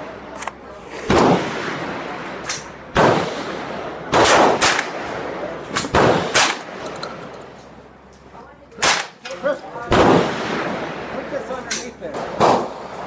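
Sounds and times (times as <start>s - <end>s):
loud gunshots: 1.1s - 2.2s, 2.9s - 6.8s, 8.8s - 9.2s, 9.9s - 11.2s, 12.1s - 13.0s
faint distant gunshots: 2.9s - 5.1s, 12.2s - 13.0s.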